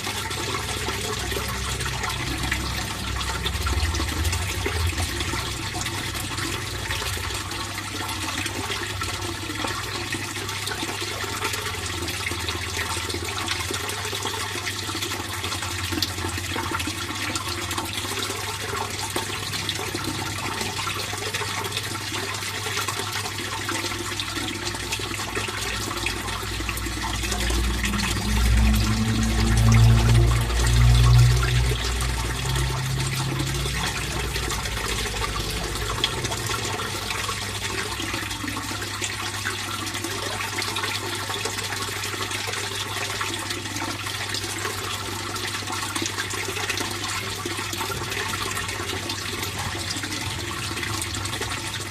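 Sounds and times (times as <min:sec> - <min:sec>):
pond water trickling: 0:00.0 - 0:51.9
low steady hum: 0:23.1 - 0:41.2
deep rumble: 0:25.6 - 0:38.5.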